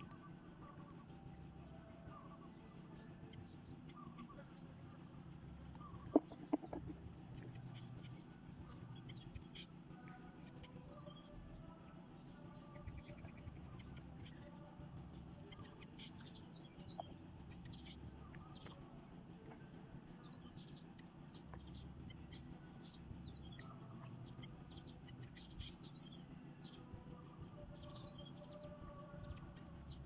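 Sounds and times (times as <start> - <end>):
birds chirping faintly: 0.0 - 30.0
low steady hum: 0.0 - 30.0.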